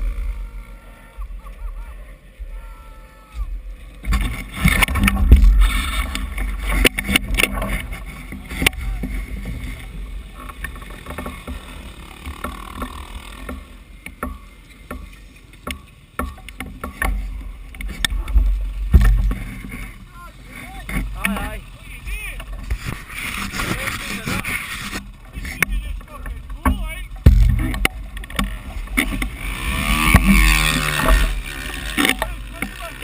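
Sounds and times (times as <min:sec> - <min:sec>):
low buffeting rumble: 0:00.0 - 0:14.0, 0:17.2 - 0:33.0
scattered knocks and clicks: 0:04.0 - 0:20.0, 0:20.8 - 0:21.6, 0:22.2 - 0:33.0.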